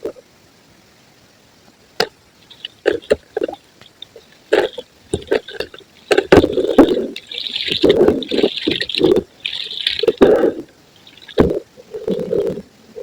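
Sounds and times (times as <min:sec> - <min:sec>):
concrete cracking: 0:02.6 - 0:11.6.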